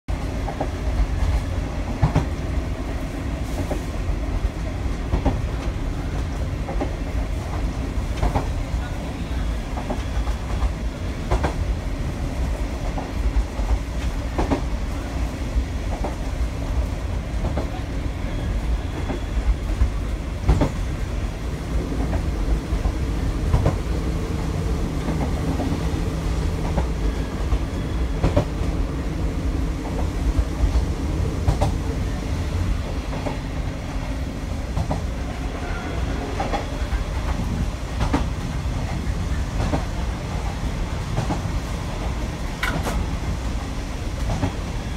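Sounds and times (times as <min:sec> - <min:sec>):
wheels clacking over rail joint: 0:42.5 - 0:43.2.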